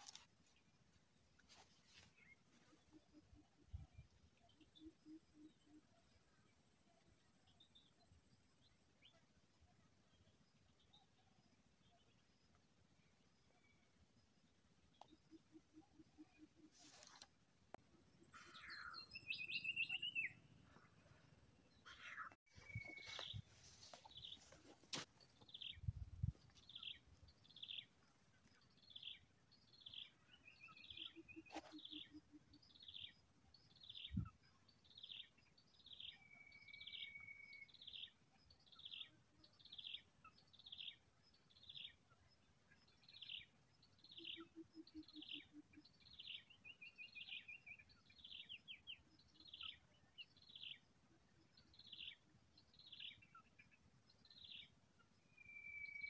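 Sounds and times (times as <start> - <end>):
bird chirping: 14.9 - 56.0.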